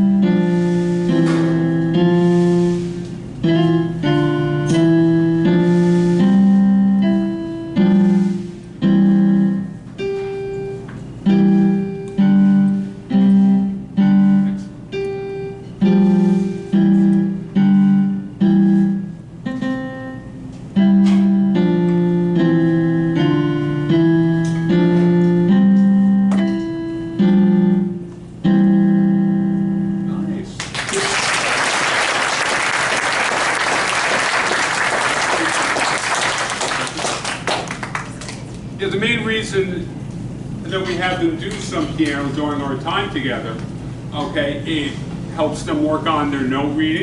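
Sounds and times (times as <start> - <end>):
solo piano melody: 0.0 - 30.4.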